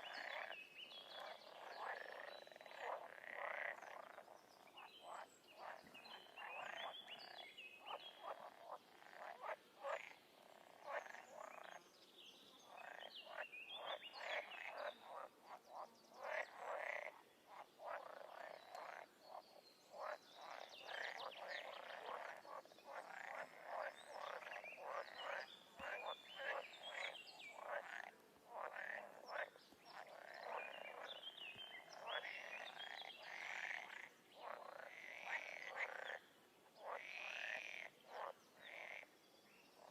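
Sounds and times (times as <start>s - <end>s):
frogs croaking: 0.0s - 11.8s, 12.6s - 39.2s.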